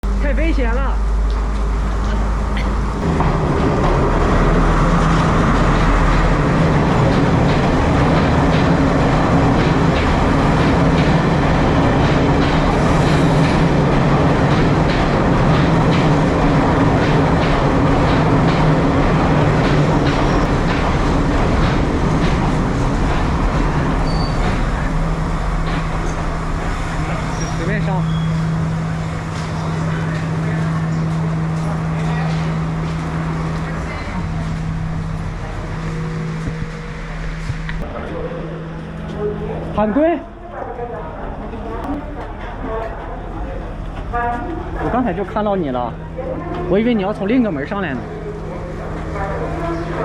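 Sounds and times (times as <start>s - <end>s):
diesel engine drone: 0.0s - 50.0s
wheels clicking over rail joints: 1.5s - 27.6s.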